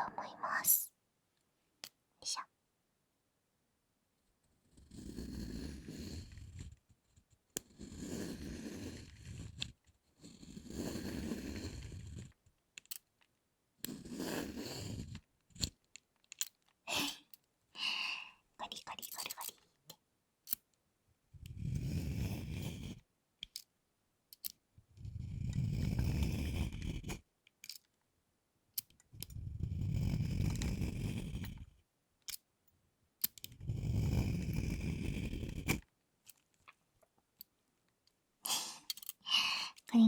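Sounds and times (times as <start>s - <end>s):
peeler shaving chocolate: 4.7s - 12.5s, 13.8s - 15.8s, 21.5s - 23.0s, 25.0s - 27.2s, 29.1s - 31.8s, 33.2s - 35.9s.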